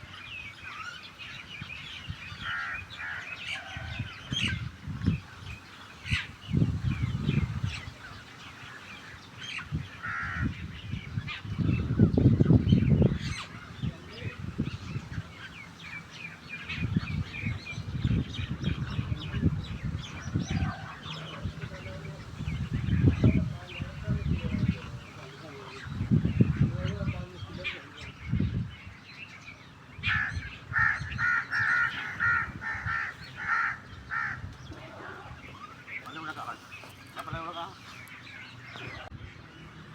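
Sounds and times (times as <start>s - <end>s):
bird harsh caw-like calls: 0.0s - 12.2s, 28.9s - 39.1s
starlings and mynas chirping: 0.0s - 39.9s.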